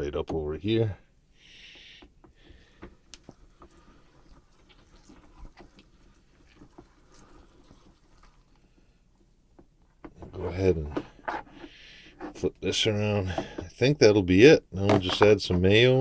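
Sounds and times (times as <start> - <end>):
faint clicks and scrapes: 1.7 - 12.5.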